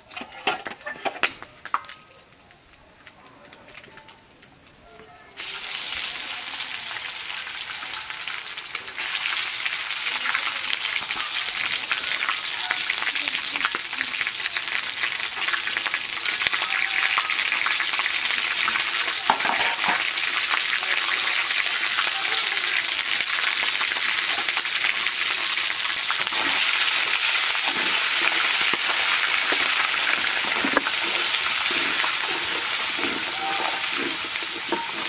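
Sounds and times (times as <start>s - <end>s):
stirring scrapes and knocks on pot: 0.1s - 1.3s, 26.2s - 35.0s
food sizzling in hot oil: 5.4s - 35.0s.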